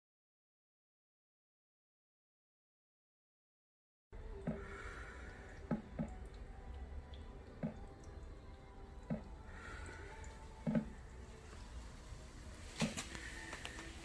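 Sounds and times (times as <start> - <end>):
water plops and drips: 4.2 - 11.7
faint steady background noise: 4.2 - 14.0.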